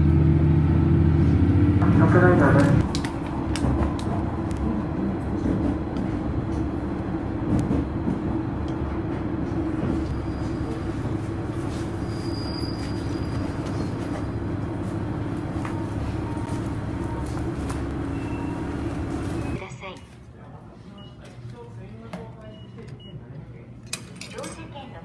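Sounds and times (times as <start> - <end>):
train rumbling on rails: 0.0 - 19.6
faint high squeal: 12.0 - 14.0.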